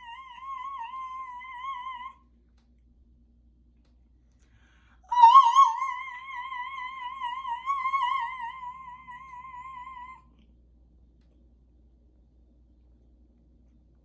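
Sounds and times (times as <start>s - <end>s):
woman singing high note: 0.0s - 2.2s, 5.1s - 10.2s.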